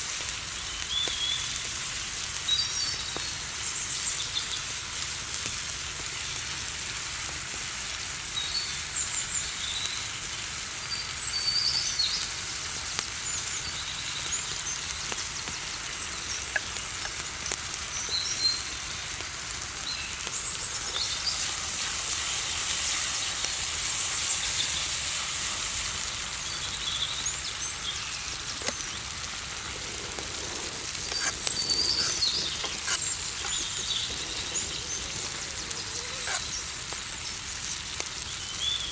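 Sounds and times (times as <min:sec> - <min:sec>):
food sizzling in a pan: 0:00.0 - 0:38.9
birds chirping: 0:13.3 - 0:18.8, 0:19.6 - 0:22.4, 0:26.4 - 0:38.9.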